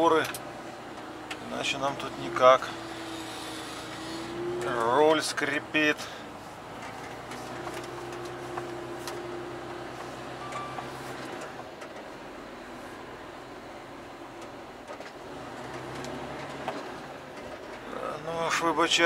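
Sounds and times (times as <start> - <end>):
truck engine humming: 0.0 - 19.0
light clicks and creaks: 6.7 - 9.2, 14.4 - 18.0.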